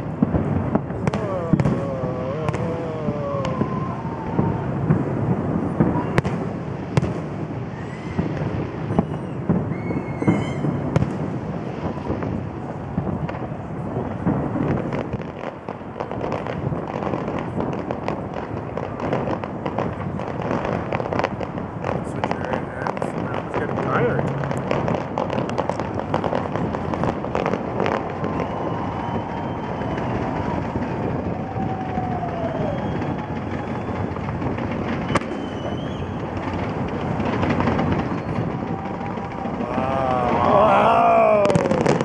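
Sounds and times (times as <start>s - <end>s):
firework whistles: 0.0s - 15.6s, 22.0s - 42.0s
firework bangs: 0.0s - 42.0s
fireworks crackling: 0.0s - 42.0s.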